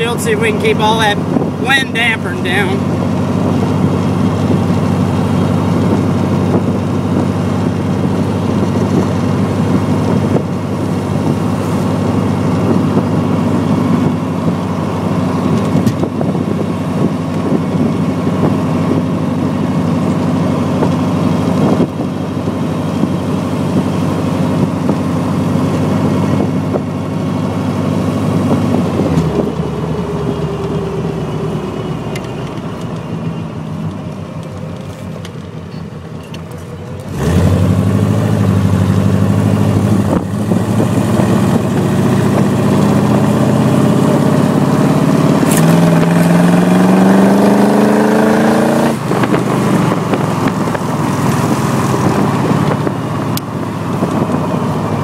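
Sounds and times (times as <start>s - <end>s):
car engine running: 0.0s - 55.0s
wind noise: 1.2s - 1.7s, 3.3s - 14.7s, 15.4s - 19.3s, 39.6s - 55.0s.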